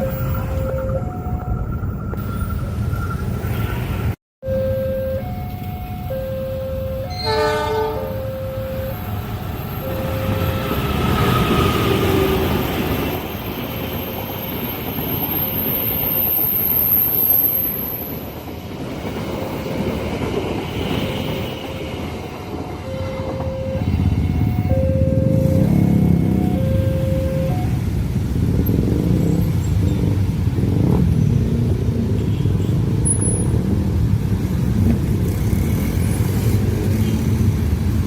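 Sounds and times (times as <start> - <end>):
train rumble and wheel noise: 0.0 - 4.2, 5.2 - 38.0
crossing signal two-pitch tone: 0.0 - 11.0, 22.8 - 27.8
train horn blast: 7.0 - 8.3.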